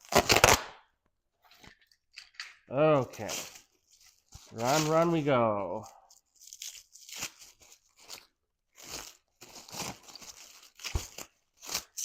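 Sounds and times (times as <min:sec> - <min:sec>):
cellophane crinkling and tearing: 0:03.1 - 0:12.0.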